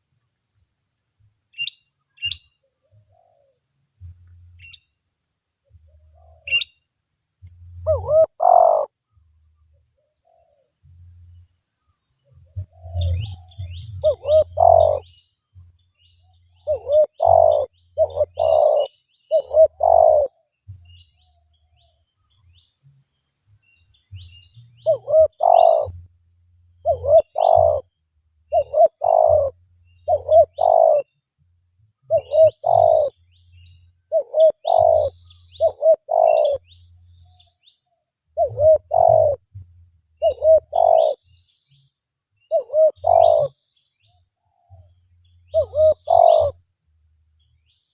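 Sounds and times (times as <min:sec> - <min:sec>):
small birds chirping faintly: 0:00.0 - 0:47.9
doves cooing: 0:07.8 - 0:08.9, 0:12.5 - 0:15.1, 0:16.6 - 0:20.5, 0:24.9 - 0:26.0, 0:26.8 - 0:27.9, 0:28.5 - 0:31.1, 0:32.1 - 0:33.2, 0:34.1 - 0:36.8, 0:38.4 - 0:39.4, 0:40.2 - 0:41.2, 0:42.5 - 0:43.6, 0:45.5 - 0:46.6.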